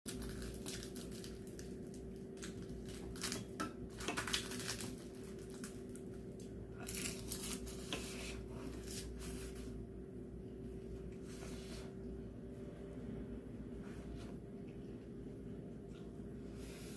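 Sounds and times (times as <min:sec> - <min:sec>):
chewing and crunching: 0:00.1 - 0:08.1
steady low hum: 0:00.1 - 0:16.9.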